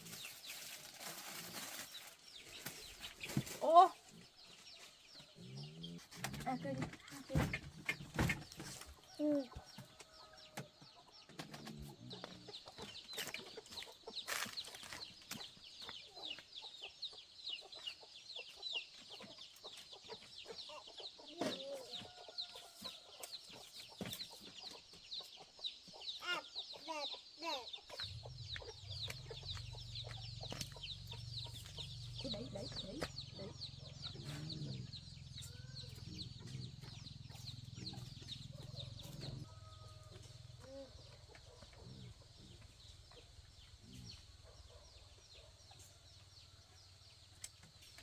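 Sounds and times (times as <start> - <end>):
chicks peeping: 0.0 - 48.0
hen clucking: 26.2 - 44.9.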